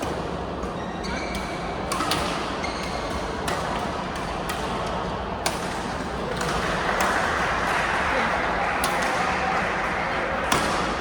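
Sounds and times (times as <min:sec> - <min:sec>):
crowd murmur: 0:06.1 - 0:11.0.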